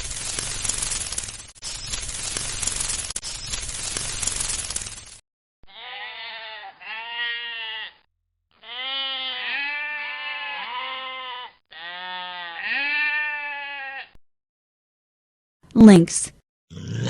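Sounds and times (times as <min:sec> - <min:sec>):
animal bleating: 0:05.6 - 0:14.2.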